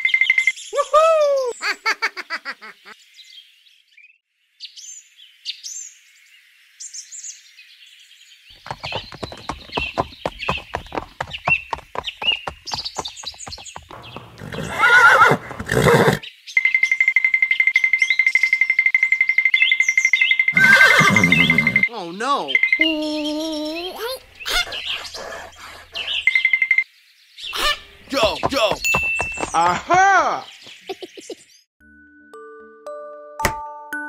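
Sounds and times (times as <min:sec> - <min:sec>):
hooves clip-clopping: 0:08.6 - 0:16.1, 0:28.0 - 0:31.1
horse whinny: 0:14.0 - 0:16.2, 0:20.6 - 0:21.9.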